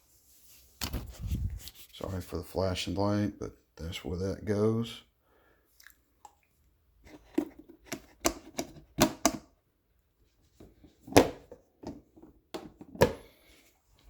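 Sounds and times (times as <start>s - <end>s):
plastic parts clicking and knocking: 7.1s - 9.5s.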